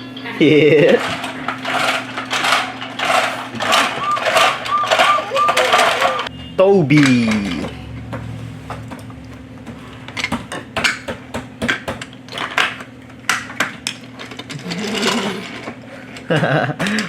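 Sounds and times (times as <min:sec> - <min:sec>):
toy train pieces clattering: 0:00.5 - 0:06.3, 0:12.4 - 0:17.0.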